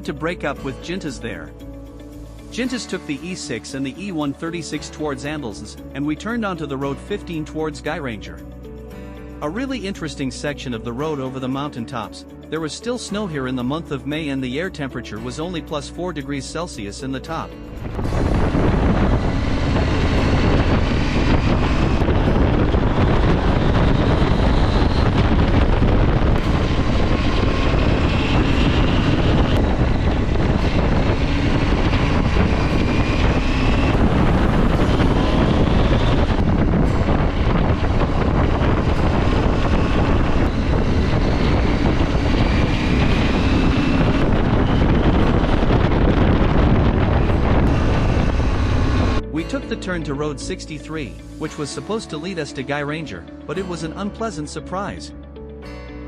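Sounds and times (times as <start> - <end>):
wind rush on microphone: 17.3 - 49.5
motorcycle engine accelerating: 17.6 - 49.5.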